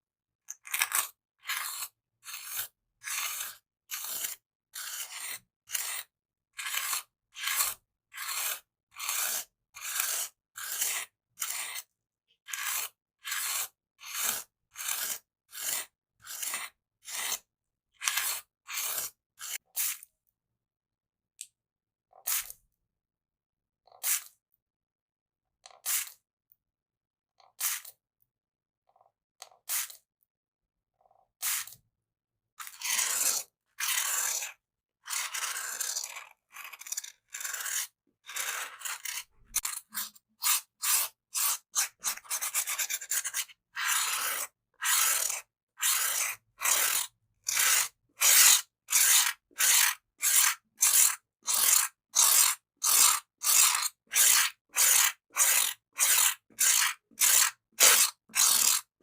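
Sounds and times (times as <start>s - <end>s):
bamboo stick scraping: 35.2s - 58.9s.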